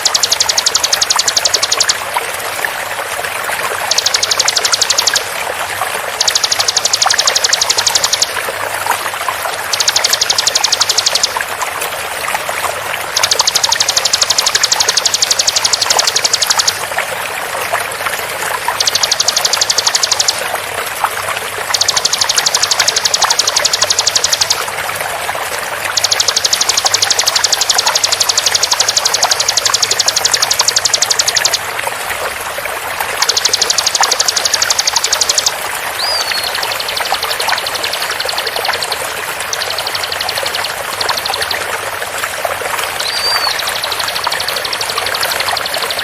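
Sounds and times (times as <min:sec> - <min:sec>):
bird singing rapid high notes: 0:00.0 - 0:02.0, 0:03.8 - 0:05.3, 0:06.1 - 0:08.5, 0:09.6 - 0:11.4, 0:13.1 - 0:16.9, 0:18.7 - 0:20.5, 0:21.6 - 0:24.7, 0:25.9 - 0:31.7, 0:33.2 - 0:41.6, 0:42.9 - 0:46.0
flowing water: 0:00.0 - 0:46.0.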